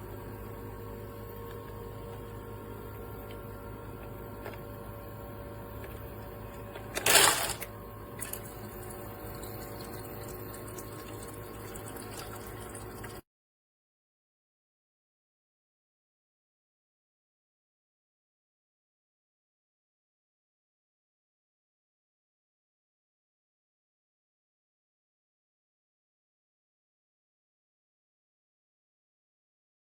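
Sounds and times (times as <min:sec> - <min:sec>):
ice maker humming: 0:00.0 - 0:13.2.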